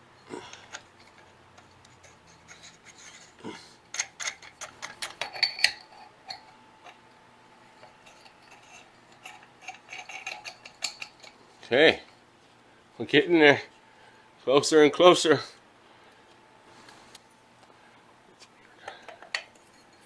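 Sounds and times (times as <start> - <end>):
faint hum: 0.0 - 20.0
small parts clicking and scraping: 0.2 - 7.0, 7.8 - 11.8, 18.3 - 20.0.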